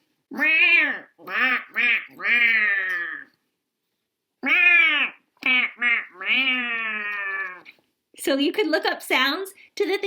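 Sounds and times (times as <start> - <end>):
woman making quacking calls: 4.4 - 7.7.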